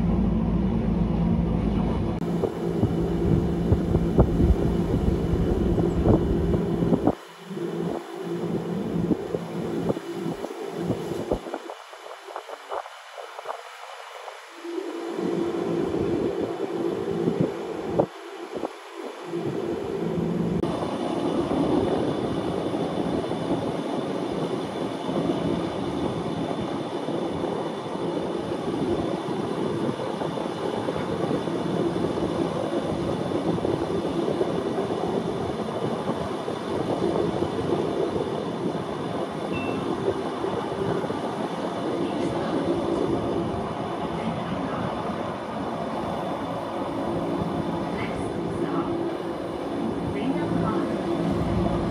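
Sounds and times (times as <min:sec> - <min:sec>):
train wheels rumbling on track: 0:00.0 - 0:11.0, 0:19.5 - 0:51.9.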